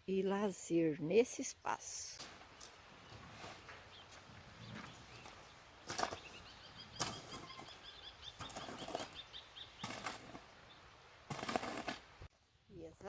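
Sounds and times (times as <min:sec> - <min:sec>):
small bird chirping: 0:02.5 - 0:10.9.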